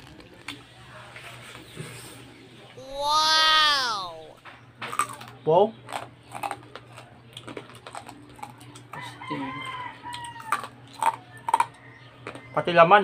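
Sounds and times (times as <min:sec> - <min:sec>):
crunching and chewing: 0:04.8 - 0:12.8
rooster crowing: 0:09.0 - 0:10.7.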